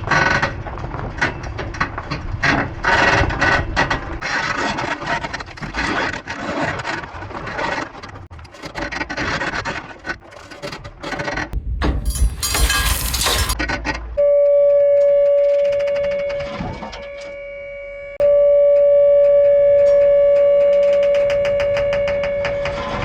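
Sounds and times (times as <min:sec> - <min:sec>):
gravel sliding and rattling: 0:12.0 - 0:13.7.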